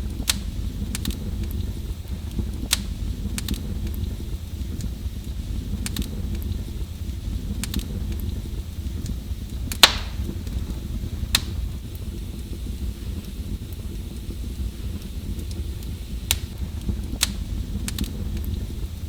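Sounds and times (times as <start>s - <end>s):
wood fire crackling: 0.0s - 19.0s
sharp loud fire pop: 9.8s - 10.3s.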